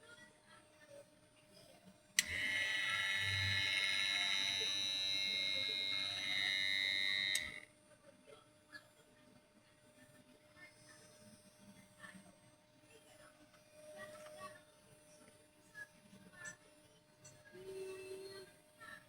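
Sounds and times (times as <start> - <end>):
small electric motor whining: 2.2 - 7.7.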